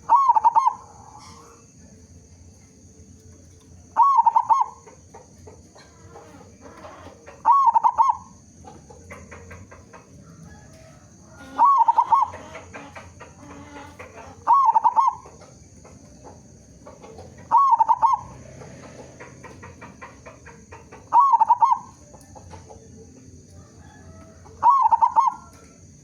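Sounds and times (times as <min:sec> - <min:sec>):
dove cooing: 0:00.0 - 0:01.7, 0:03.9 - 0:26.0
faint chirps and clicks: 0:19.4 - 0:23.6, 0:24.2 - 0:26.0.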